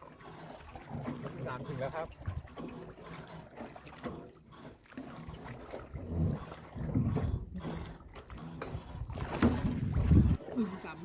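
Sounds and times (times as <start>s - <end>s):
water lapping and trickling: 0.0s - 11.0s
wind buffeting microphone: 8.6s - 10.4s.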